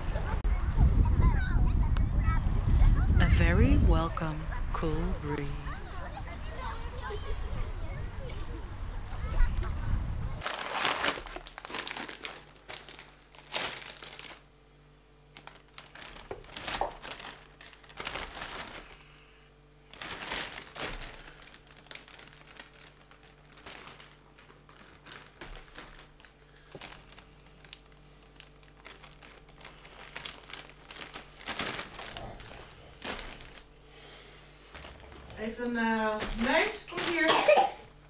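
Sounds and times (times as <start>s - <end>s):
faint steady hum: 0.0s - 38.0s
crinkling and rustling: 10.4s - 14.5s, 15.3s - 19.1s, 19.9s - 33.7s, 34.7s - 37.3s.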